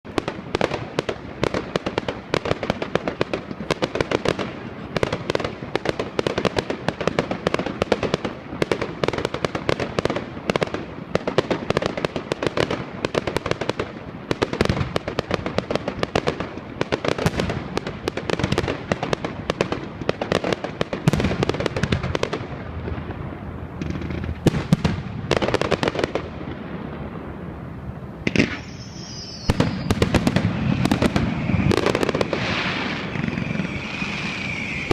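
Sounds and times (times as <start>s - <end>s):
fireworks bangs and crackles: 0.0s - 34.9s
firework whistle: 28.2s - 34.9s.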